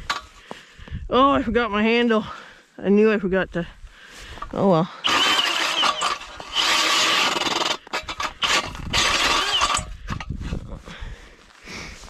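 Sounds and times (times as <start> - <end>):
ice auger grinding into ice: 5.0 - 10.3.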